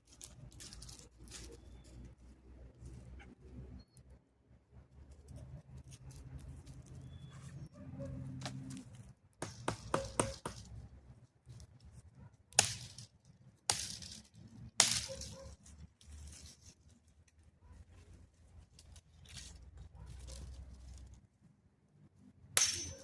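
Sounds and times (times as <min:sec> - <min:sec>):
dry wood snapping: 0:08.4 - 0:10.8, 0:12.5 - 0:13.1, 0:13.7 - 0:16.3.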